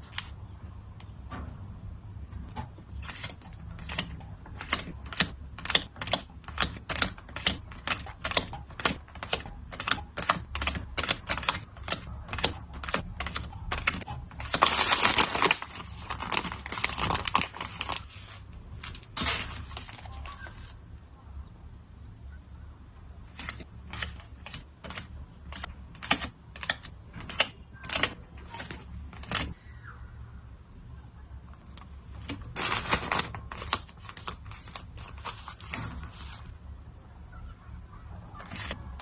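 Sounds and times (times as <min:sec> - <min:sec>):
plastic packaging crinkling: 0:11.0 - 0:20.7, 0:32.1 - 0:36.5.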